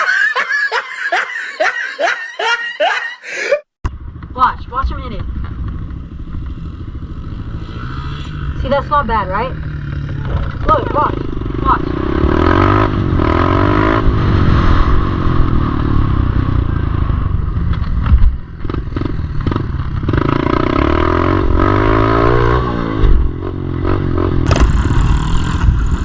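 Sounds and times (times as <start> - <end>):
pit bike engine revving: 5.8 - 16.6, 18.6 - 26.0.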